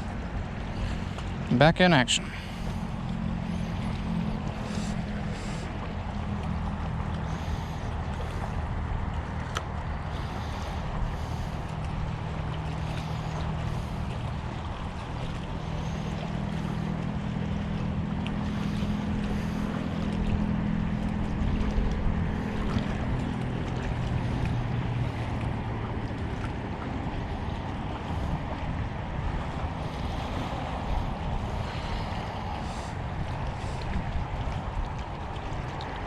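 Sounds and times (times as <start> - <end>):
boat motor droning: 0.0 - 36.0
wind on microphone: 18.4 - 36.0.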